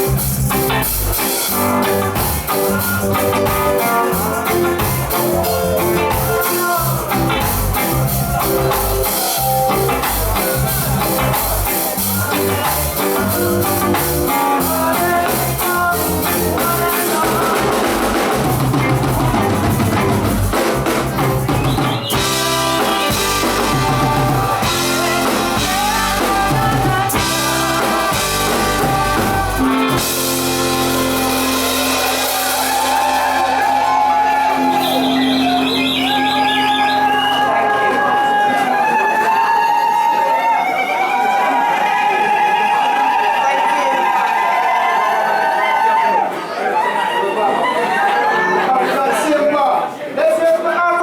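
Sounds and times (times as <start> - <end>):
steady bass line: 0.0 - 38.0
drum kit rimshots: 0.0 - 38.1
reggae band playing: 0.0 - 40.4.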